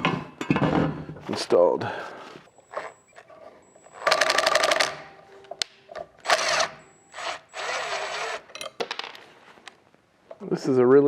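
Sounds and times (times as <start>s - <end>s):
cordless drill rattling: 6.2s - 8.5s.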